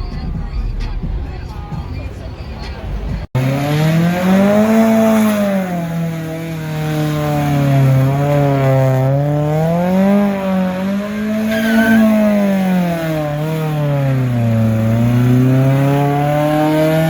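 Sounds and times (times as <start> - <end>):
car engine revving: 0.0 - 17.0
brief high squeal: 11.4 - 12.4.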